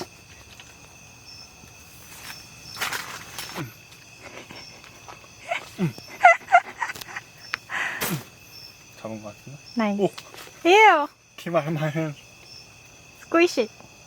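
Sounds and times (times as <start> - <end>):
rustling in a tent: 0.0 - 13.2
crickets chirping: 0.0 - 14.0.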